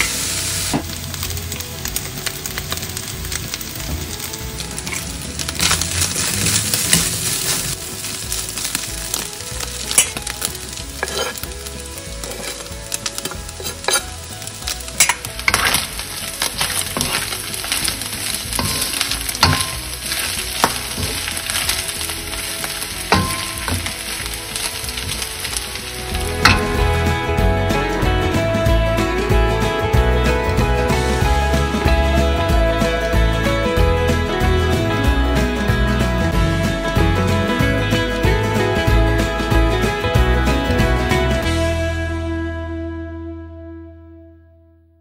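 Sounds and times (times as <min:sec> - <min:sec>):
chicken sizzling in butter: 0:00.0 - 0:29.4
wooden spatula scraping a pan: 0:04.7 - 0:27.1.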